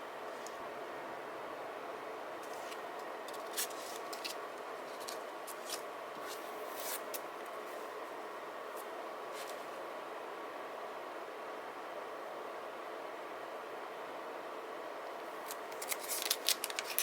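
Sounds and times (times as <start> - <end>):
steady background hum: 0.0 - 17.0
paper and stickers rustling: 2.4 - 7.2, 15.4 - 17.0.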